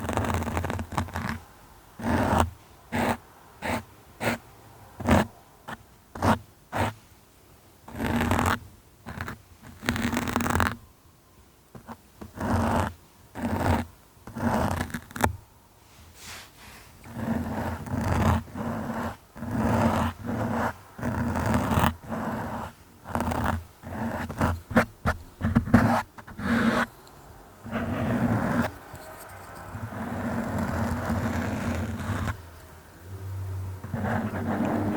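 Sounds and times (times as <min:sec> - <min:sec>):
continuous rubbing noise: 0:00.0 - 0:04.4, 0:07.9 - 0:10.8, 0:11.7 - 0:27.0, 0:27.6 - 0:32.8, 0:33.6 - 0:34.9
scratching and scraping strokes: 0:11.8 - 0:27.0, 0:27.6 - 0:32.8, 0:33.5 - 0:34.9.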